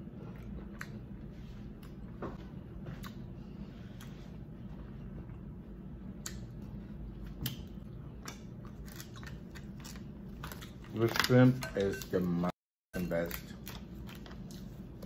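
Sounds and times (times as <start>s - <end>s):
person chewing: 0.0s - 2.2s, 2.9s - 11.0s, 13.2s - 15.0s
low steady hum: 0.0s - 15.0s.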